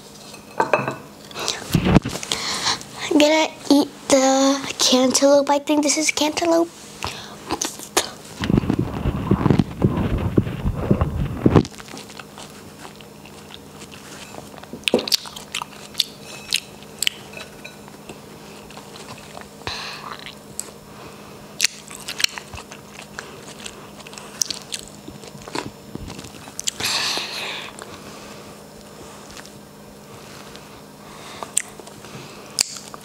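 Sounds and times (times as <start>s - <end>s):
wet chewing clicks and smacks: 12.1s - 17.2s, 21.6s - 26.8s, 32.6s - 33.0s.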